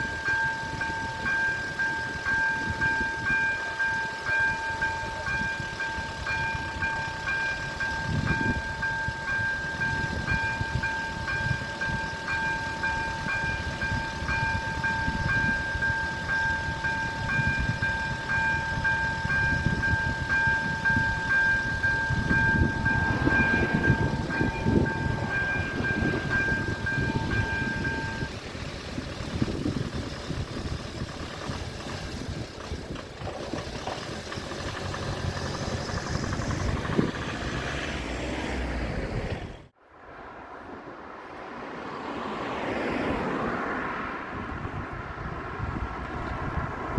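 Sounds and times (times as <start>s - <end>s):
level crossing bells ringing: 0.0s - 28.5s
train rumbling: 0.0s - 46.9s.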